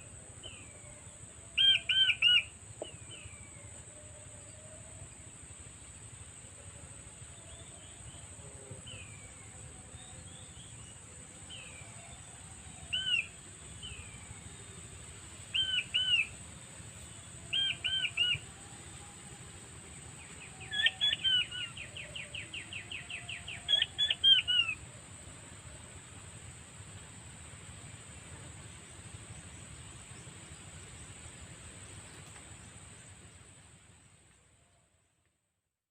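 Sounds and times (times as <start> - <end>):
steady high-pitched hiss: 0.0 - 35.9
quail whistled calls: 1.6 - 2.5, 15.6 - 16.4, 17.5 - 18.4, 20.6 - 24.8.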